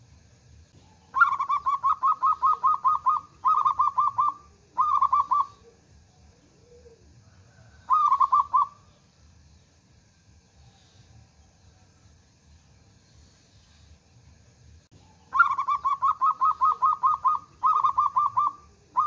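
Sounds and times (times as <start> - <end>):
dove cooing: 0.8 - 8.9, 15.0 - 19.0.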